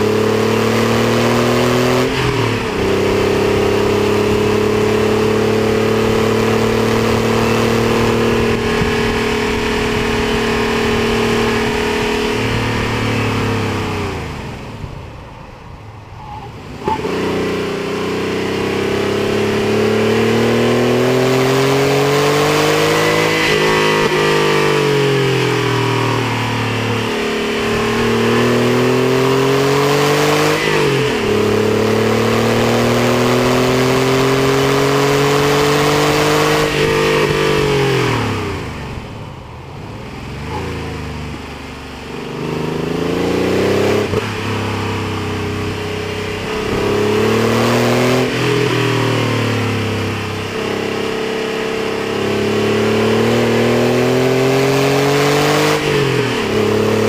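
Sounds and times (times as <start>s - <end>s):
sports car engine under hard throttle: 0.0s - 57.0s.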